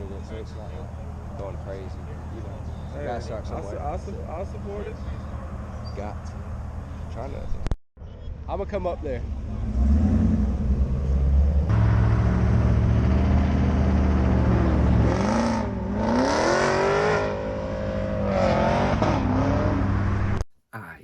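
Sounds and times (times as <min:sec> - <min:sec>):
car engine revving: 0:09.0 - 0:20.4.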